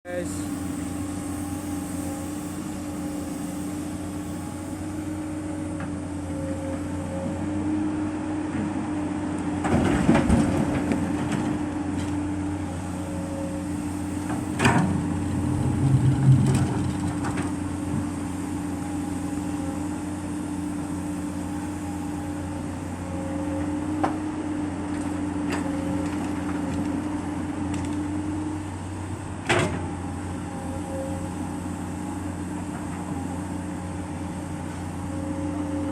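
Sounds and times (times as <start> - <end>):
excavator diesel engine running: 0.1 - 35.9
excavator knocks and clanks: 9.4 - 12.3, 14.1 - 18.4, 23.6 - 27.0, 29.4 - 30.0.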